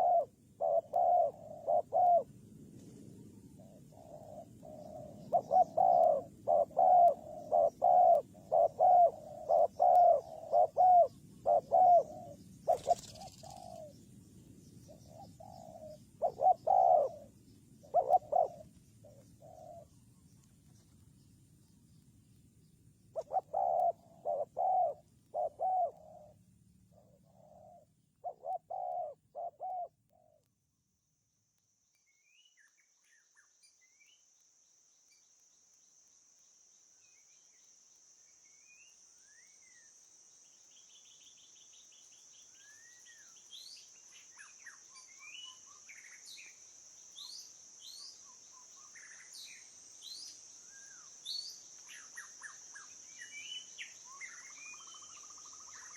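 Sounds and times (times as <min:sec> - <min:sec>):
dove cooing: 0:00.0 - 0:02.4, 0:03.4 - 0:14.0, 0:14.9 - 0:20.0, 0:23.1 - 0:30.5
small birds chirping: 0:00.0 - 0:30.6, 0:31.9 - 0:55.9
high-pitched hiss: 0:31.0 - 0:55.9.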